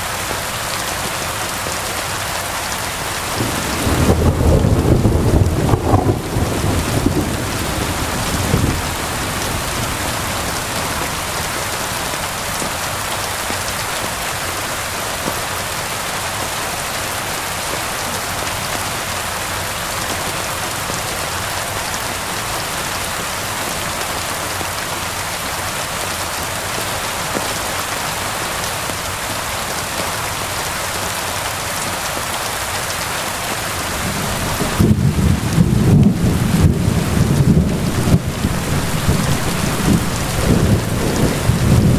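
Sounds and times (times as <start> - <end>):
rain falling: 0.0 - 41.9
thunder rumbling: 3.2 - 12.0, 33.8 - 41.9.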